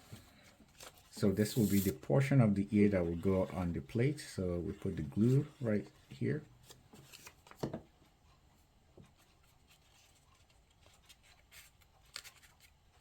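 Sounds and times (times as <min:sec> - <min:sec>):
paper rustling: 0:06.6 - 0:07.8, 0:09.0 - 0:13.0.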